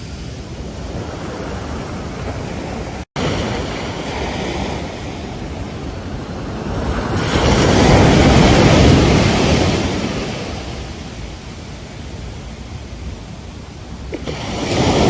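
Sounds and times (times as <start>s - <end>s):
wave breaking: 0.0s - 11.0s, 14.1s - 15.0s
ocean surf on beach: 0.0s - 15.0s.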